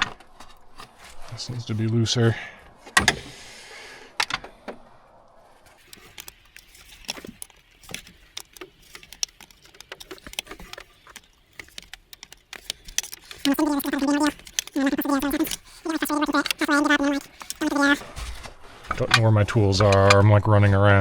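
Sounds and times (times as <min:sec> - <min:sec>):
loose metal parts clinking: 0:05.7 - 0:20.4
metallic clicks of hand tools: 0:05.8 - 0:17.8.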